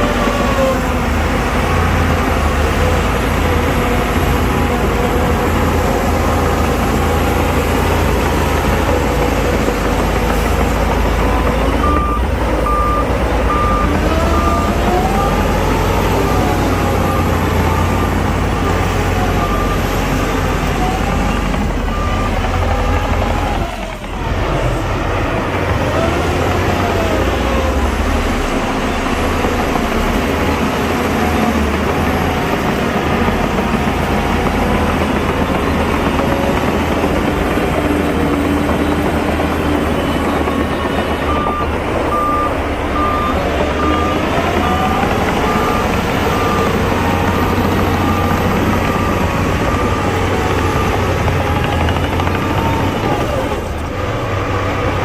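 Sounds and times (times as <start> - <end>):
heavy diesel engines running: 0.0 - 55.0
reversing alarm beeping: 5.8 - 24.0, 38.4 - 53.8.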